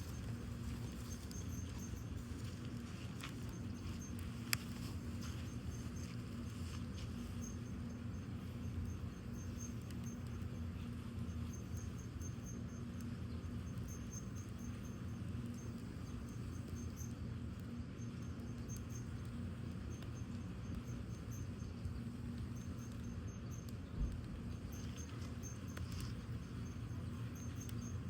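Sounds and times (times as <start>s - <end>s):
crickets chirping: 0.0s - 28.0s
fire crackles: 0.0s - 28.0s
wood fire rumbling: 21.8s - 28.0s.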